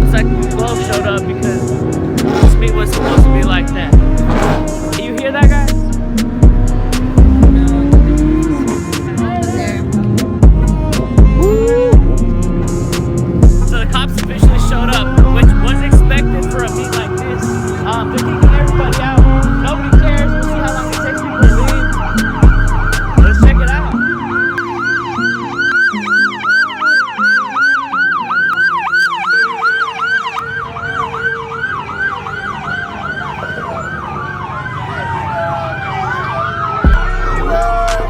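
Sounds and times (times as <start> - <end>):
hip-hop instrumental music: 0.0 - 34.2, 36.1 - 38.0
police siren: 0.3 - 5.5, 14.7 - 38.0.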